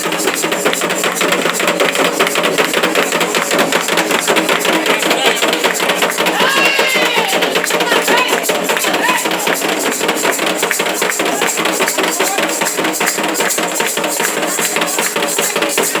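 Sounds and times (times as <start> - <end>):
fast ritual drumming: 0.0 - 16.0
voices: 0.0 - 16.0.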